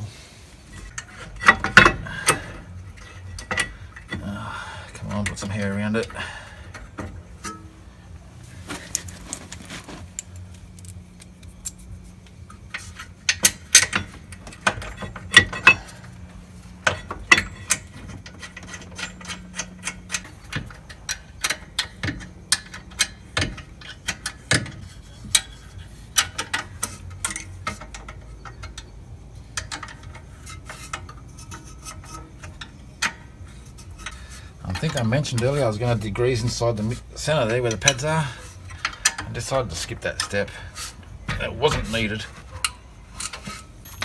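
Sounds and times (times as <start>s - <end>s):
metal tools clinking: 0.7s - 44.0s.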